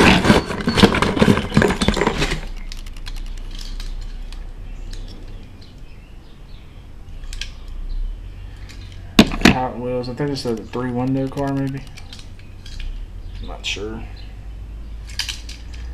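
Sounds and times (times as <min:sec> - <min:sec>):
metal toy cars clattering: 0:00.0 - 0:05.4, 0:15.0 - 0:15.9.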